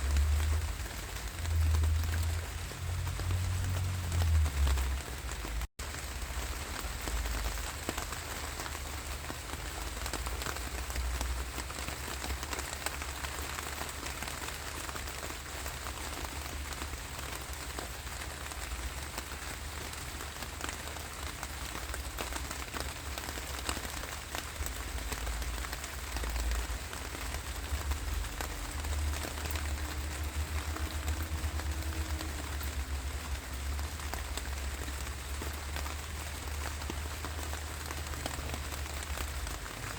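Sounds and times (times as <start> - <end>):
low rumble: 0.0 - 5.7
steady rainfall: 0.0 - 39.9.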